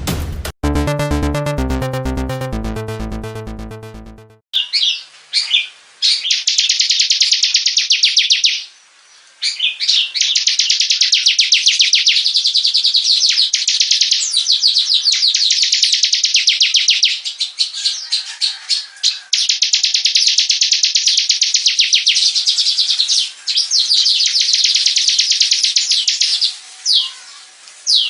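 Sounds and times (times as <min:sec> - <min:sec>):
short musical intro: 0:00.0 - 0:04.4.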